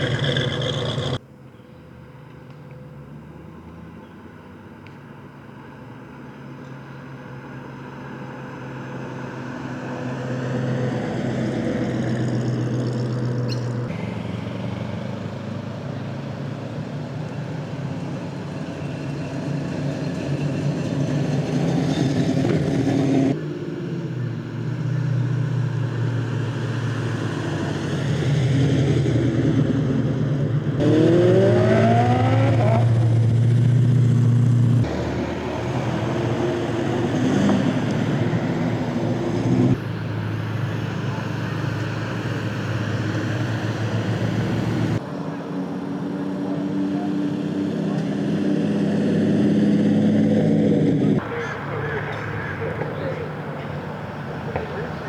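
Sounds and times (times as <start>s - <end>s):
performance car engines driving past: 0.0s - 55.0s.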